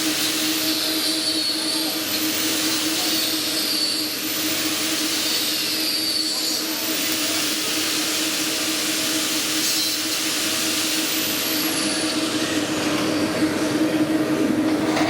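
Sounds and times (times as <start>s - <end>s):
lathe running: 14.5s - 15.0s.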